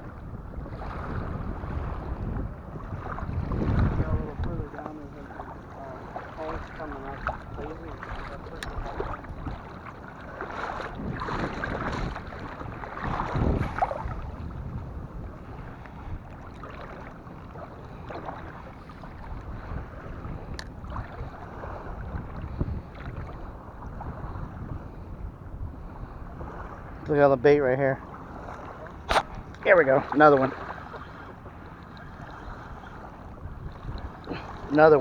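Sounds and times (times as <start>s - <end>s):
water lapping at shore: 0.0s - 35.0s
wind buffeting microphone: 0.0s - 35.0s.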